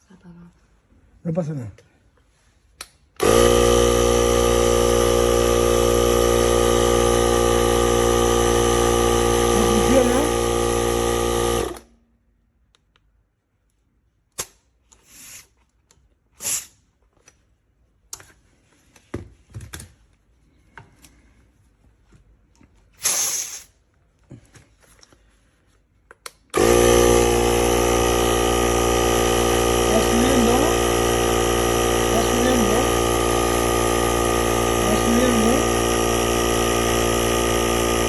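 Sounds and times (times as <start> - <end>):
electric air compressor running: 3.2 - 12.0, 26.6 - 38.0.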